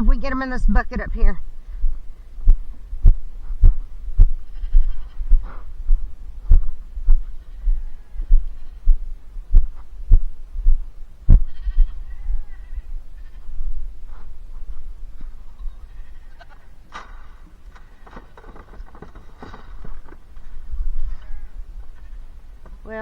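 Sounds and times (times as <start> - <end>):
dull low thumps: 0.0 - 15.7
farm animal bleating: 4.3 - 5.8, 7.1 - 8.9, 11.2 - 14.3, 15.2 - 16.9, 17.7 - 18.3, 20.4 - 23.0.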